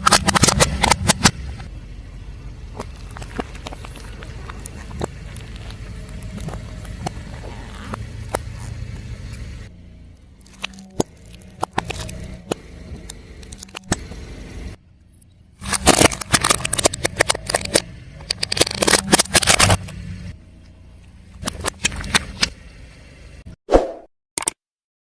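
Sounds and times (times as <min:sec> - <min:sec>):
low engine hum: 0:00.0 - 0:23.5
tyre crunching objects: 0:02.6 - 0:09.6, 0:10.3 - 0:14.2, 0:15.6 - 0:20.3.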